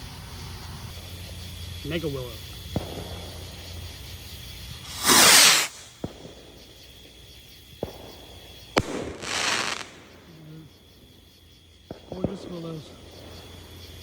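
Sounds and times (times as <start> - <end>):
firework cracks: 2.6 - 11.2
firework rocket whoosh: 4.7 - 6.6, 8.8 - 10.2.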